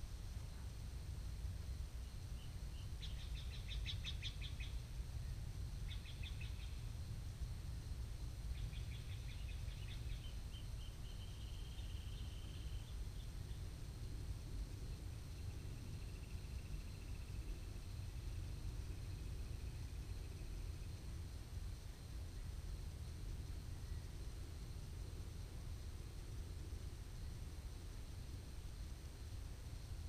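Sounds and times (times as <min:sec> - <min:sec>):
songbird chirping and trilling: 0:02.0 - 0:06.9, 0:08.5 - 0:13.6.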